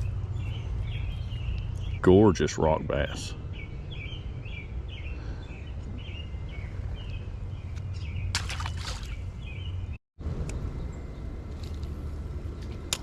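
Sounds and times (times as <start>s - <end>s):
birds chirping: 0.0s - 11.8s
low outdoor rumble: 0.0s - 13.0s.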